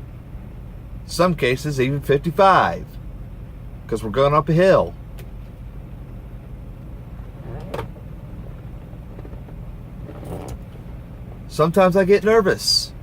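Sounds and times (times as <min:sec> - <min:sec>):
road noise: 0:00.0 - 0:13.0
truck engine drone: 0:00.0 - 0:13.0.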